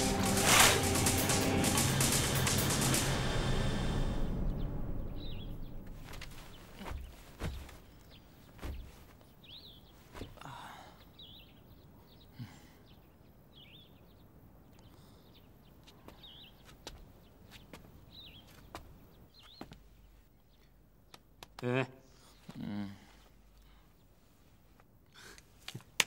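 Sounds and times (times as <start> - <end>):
music: 0.0 - 6.1
small birds chirping: 4.3 - 26.0
soft thumps: 5.8 - 9.2.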